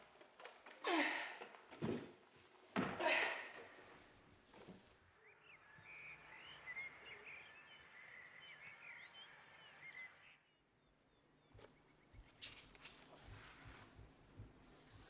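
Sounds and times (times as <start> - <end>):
faint outdoor background noise: 2.6 - 15.0
birds chirping: 3.6 - 15.0.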